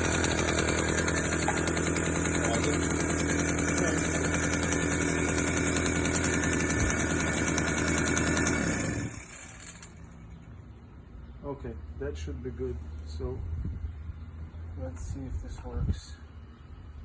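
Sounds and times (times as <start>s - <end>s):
moped engine running: 0.0s - 10.5s.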